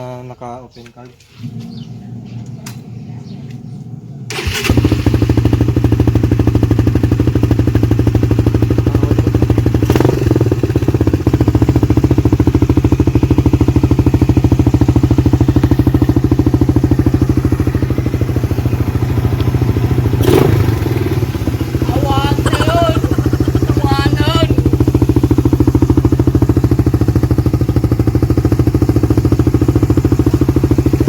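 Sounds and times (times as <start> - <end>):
engine sharp burst: 4.2 - 5.8, 17.3 - 27.3
motorcycle engine idling loudly: 4.3 - 31.0.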